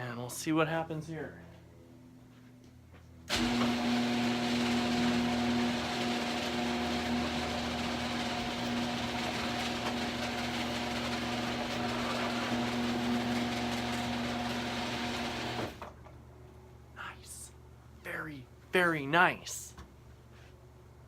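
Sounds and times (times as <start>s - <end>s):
garage door opener motor humming: 3.3s - 16.1s.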